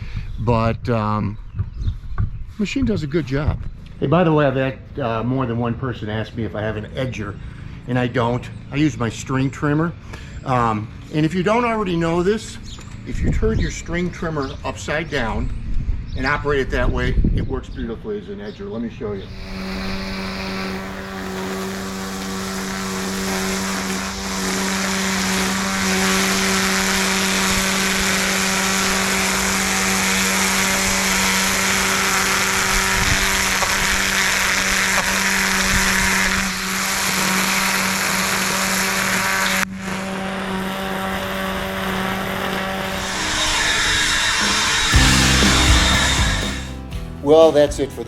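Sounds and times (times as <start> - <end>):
string trimmer motor whine: 19.1 - 46.8
trimmer line cutting hiss: 19.2 - 46.9.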